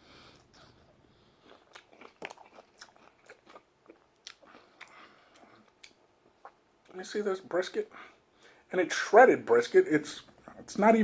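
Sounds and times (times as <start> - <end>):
person chewing food: 0.2 - 7.0.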